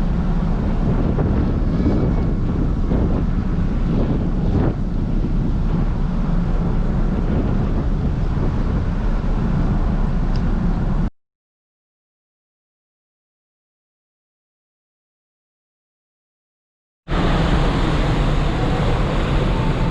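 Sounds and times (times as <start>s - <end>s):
steady low rumble: 0.0s - 11.1s, 17.1s - 19.9s
wind buffeting microphone: 0.0s - 11.1s, 17.1s - 19.9s.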